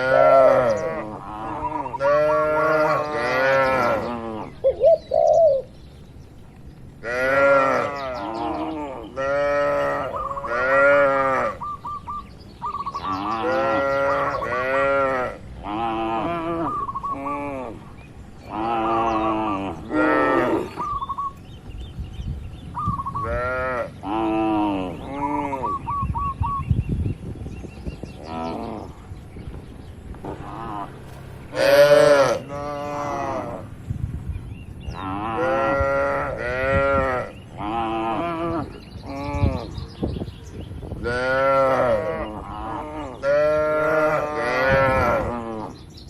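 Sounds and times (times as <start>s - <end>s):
cattle mooing: 0.0s - 4.5s, 7.0s - 11.6s, 13.0s - 17.8s, 18.5s - 20.8s, 30.3s - 33.7s, 34.9s - 39.8s, 41.0s - 45.8s.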